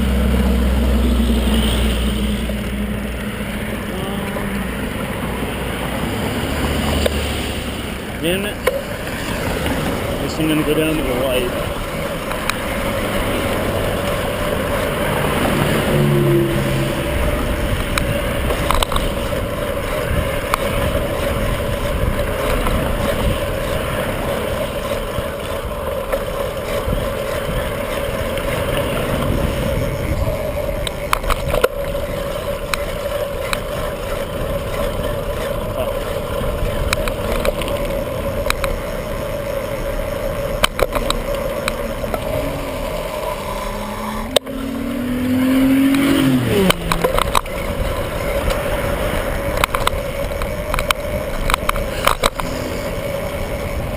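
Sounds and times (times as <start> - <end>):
bicycle rolling noise: 0.0 - 53.9
wind rush: 28.5 - 31.6.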